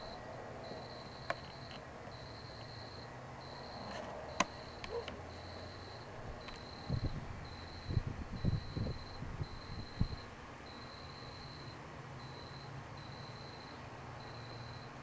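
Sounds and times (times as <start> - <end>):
insects trilling: 0.0 - 15.0
sharp clicks: 4.4 - 5.2.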